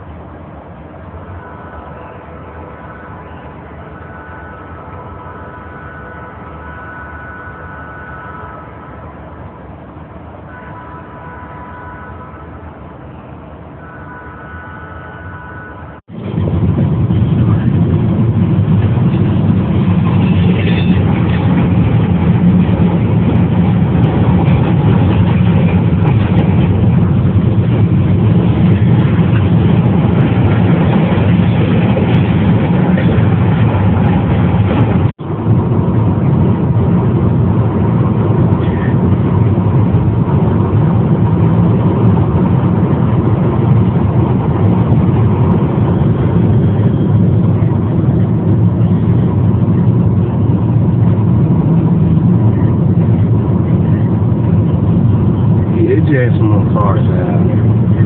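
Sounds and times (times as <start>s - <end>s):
low vehicle rumble: 0.0s - 58.0s.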